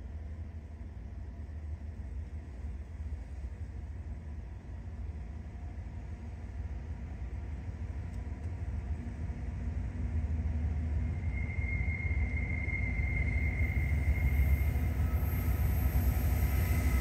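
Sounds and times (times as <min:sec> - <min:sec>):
freight train rumbling: 0:00.0 - 0:17.0
high-pitched whine: 0:10.8 - 0:17.0.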